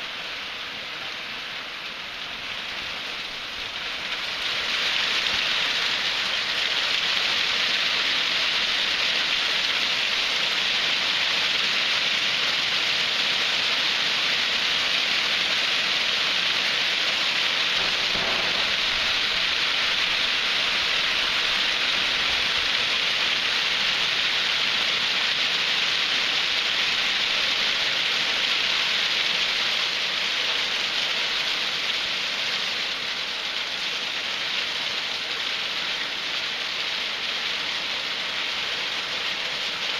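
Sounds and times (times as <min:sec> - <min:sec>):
hail falling heavily: 0:17.2 - 0:31.8.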